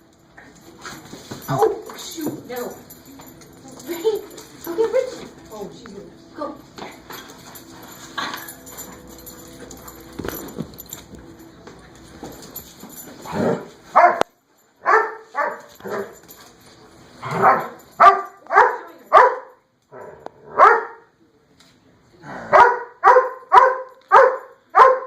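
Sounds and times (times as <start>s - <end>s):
dog barking: 13.5s - 16.2s, 17.3s - 19.6s, 20.5s - 21.1s, 22.5s - 25.0s.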